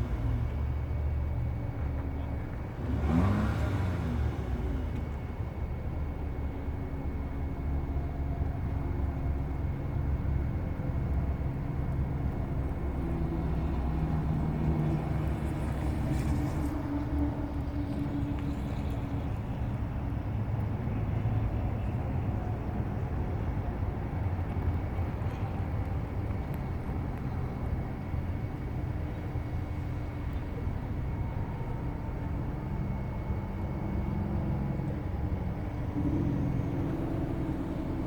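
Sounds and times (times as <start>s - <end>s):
car engine running: 0.0s - 38.0s.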